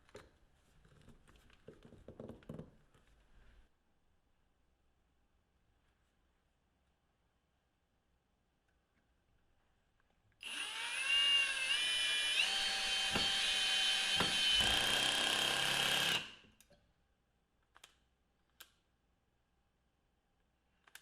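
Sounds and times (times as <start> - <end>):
cordless drill whining: 10.4 - 16.4.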